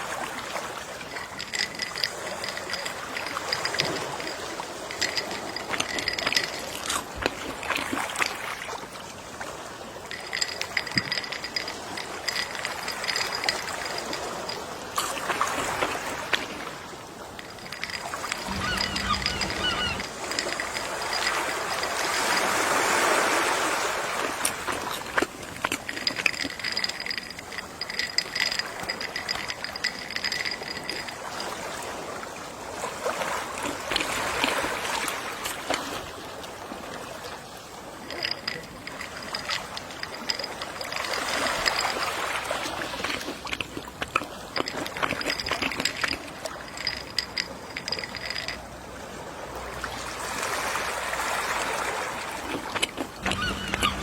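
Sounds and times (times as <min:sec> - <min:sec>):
gentle sea waves: 0:00.0 - 0:54.0.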